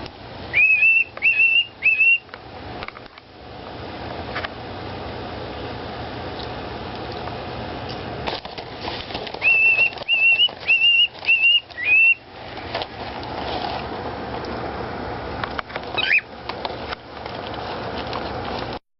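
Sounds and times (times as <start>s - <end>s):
steady background hiss: 0.0s - 18.8s
short whistled notes: 9.4s - 12.2s
whistled glide: 9.4s - 12.2s.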